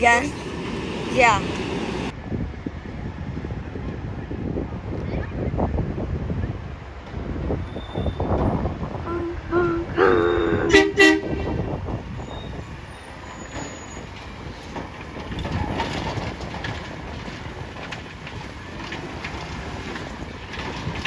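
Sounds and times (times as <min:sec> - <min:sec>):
heavy vehicles rumbling: 0:00.0 - 0:21.0
horn toots: 0:09.1 - 0:11.9.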